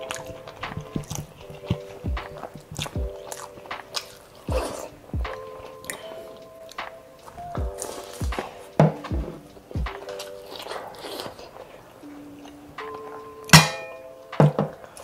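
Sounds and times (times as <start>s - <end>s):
wet chewing and smacking: 0.0s - 6.0s, 10.0s - 12.6s
soft background music: 0.0s - 15.0s.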